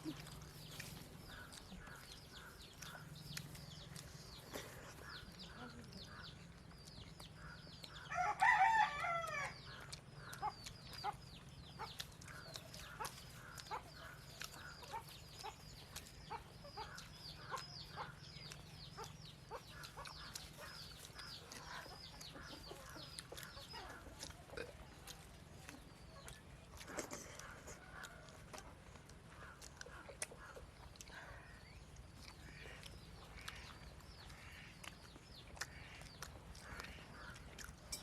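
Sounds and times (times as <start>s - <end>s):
rooster crowing: 8.1s - 9.6s.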